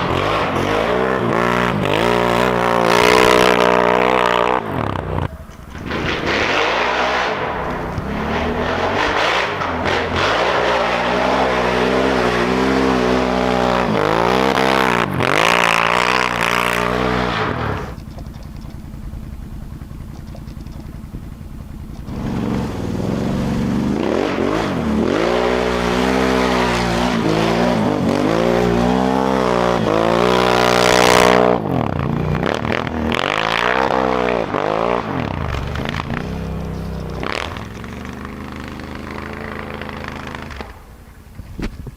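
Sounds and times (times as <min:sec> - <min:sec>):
atv engine revving: 0:00.0 - 0:41.8.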